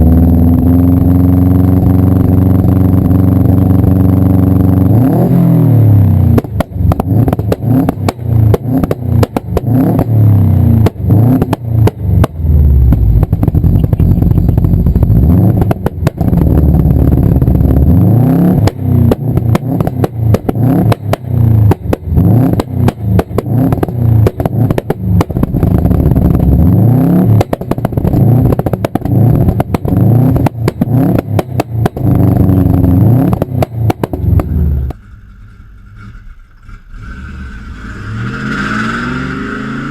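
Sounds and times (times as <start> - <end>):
car engine revving: 0.0 - 39.9
exhaust pops and bangs: 6.0 - 36.8.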